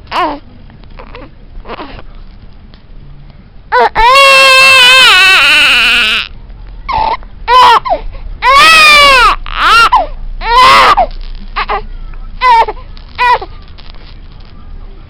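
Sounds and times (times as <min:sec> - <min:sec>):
baby crying: 0:03.7 - 0:06.3, 0:06.9 - 0:13.5.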